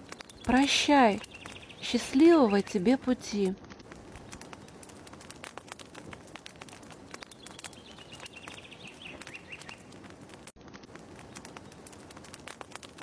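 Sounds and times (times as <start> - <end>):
fireplace crackling and popping: 0.0 - 13.0
bird trill: 7.4 - 9.9.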